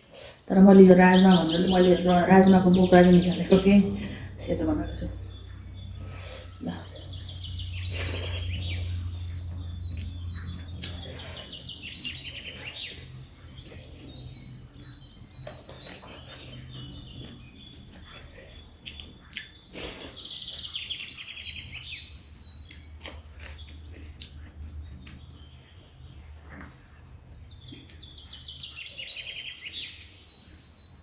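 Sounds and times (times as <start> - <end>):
birds chirping in falling trills: 0.1 - 31.0
low steady hum: 0.5 - 18.0
chewing sounds: 1.4 - 30.6.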